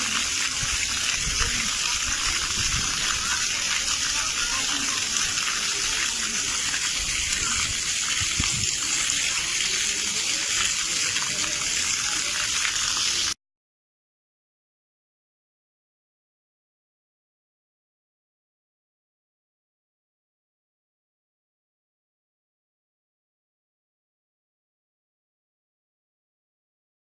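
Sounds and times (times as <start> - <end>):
faint voices: 0.0 - 13.4
water rushing: 0.0 - 13.4.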